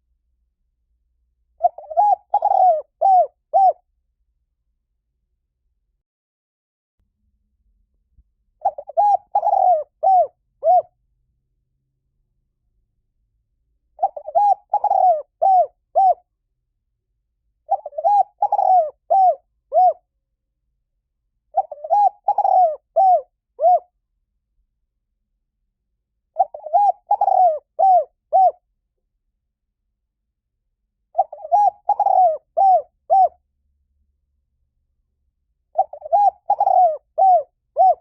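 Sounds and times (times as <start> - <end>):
dove cooing: 1.6 - 3.8, 8.6 - 10.9, 14.0 - 16.2, 17.7 - 20.0, 21.5 - 23.9, 26.4 - 28.6, 31.1 - 33.4, 35.7 - 38.0.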